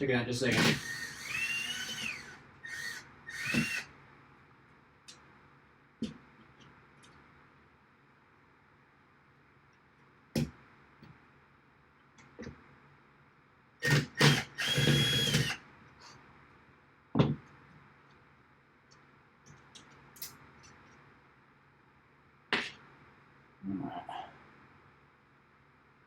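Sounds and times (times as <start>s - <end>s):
power drill whining: 0.5s - 3.9s, 13.8s - 15.6s.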